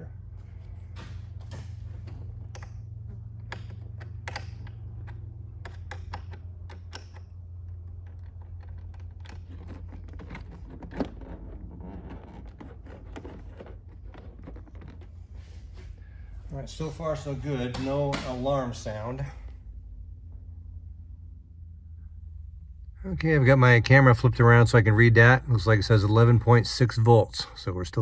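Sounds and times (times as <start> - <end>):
steady low hum: 0.0 - 28.0
hand tools clicking and tapping: 1.4 - 10.4.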